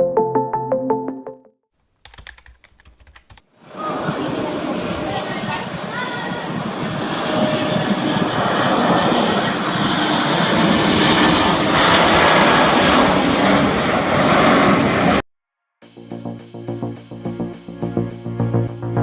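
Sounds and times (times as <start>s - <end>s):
jet engine roar: 3.6s - 15.2s.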